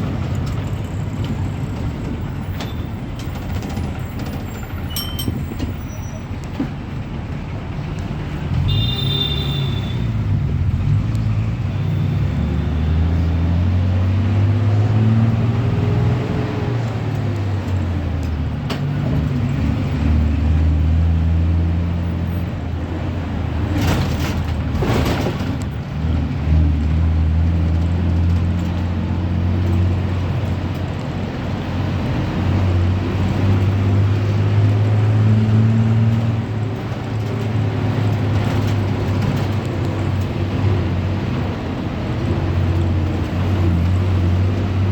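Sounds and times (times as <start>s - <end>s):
bus engine running: 0.0s - 44.9s.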